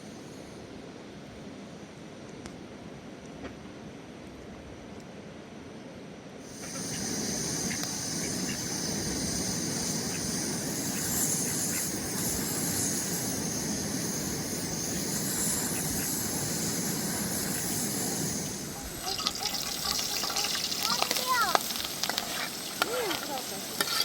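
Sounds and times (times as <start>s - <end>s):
water rushing: 16.3s - 24.0s.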